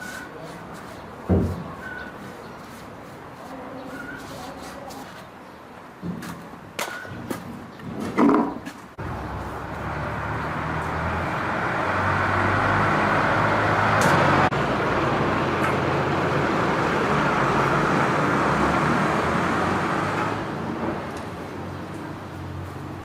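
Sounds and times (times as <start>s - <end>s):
engine running: 9.0s - 23.0s.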